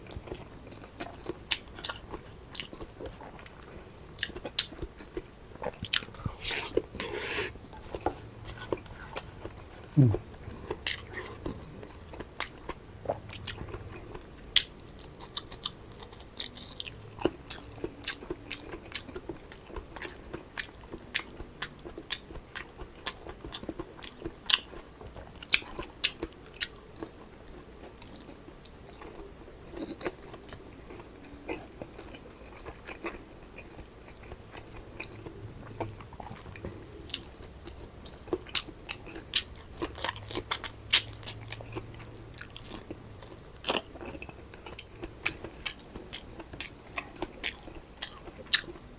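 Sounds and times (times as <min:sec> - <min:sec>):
person chewing and crunching food: 0:00.0 - 0:48.9.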